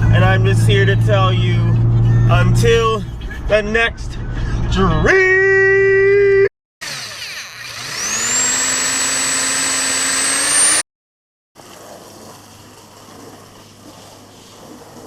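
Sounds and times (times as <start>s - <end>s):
engine revving: 6.8s - 10.9s.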